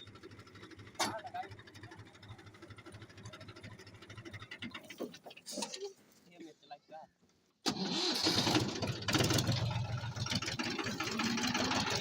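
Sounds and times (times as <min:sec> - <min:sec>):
tractor diesel engine running: 0:00.0 - 0:05.3, 0:07.7 - 0:12.0.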